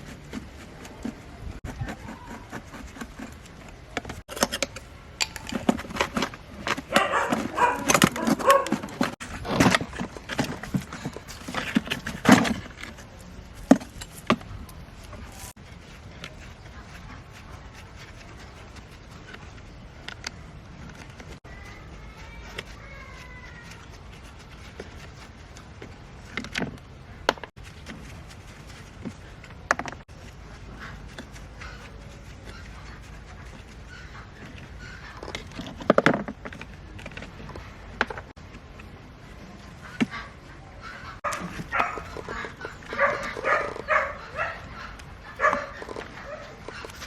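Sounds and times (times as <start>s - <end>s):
dog barking and yipping: 6.7s - 9.2s, 40.1s - 47.0s.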